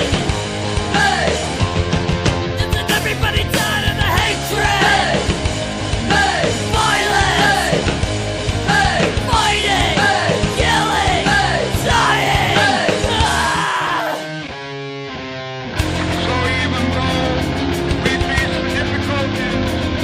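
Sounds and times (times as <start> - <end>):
yelled vocals: 0.0 - 1.7, 2.5 - 14.5
punk rock music: 0.0 - 20.0.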